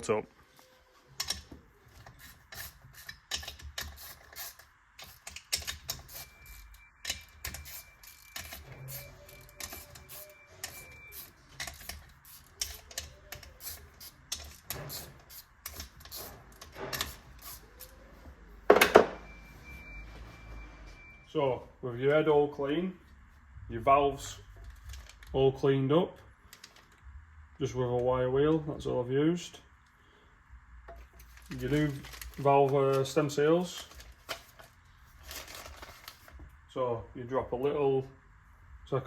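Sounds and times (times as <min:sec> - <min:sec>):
metal parts and tools clicking: 0:01.2 - 0:18.0.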